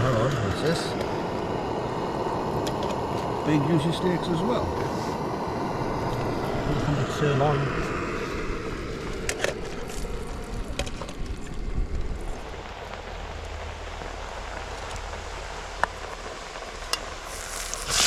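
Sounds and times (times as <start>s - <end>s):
food sizzling on fire: 0.0s - 18.0s
fire crackles and pops: 8.6s - 18.0s.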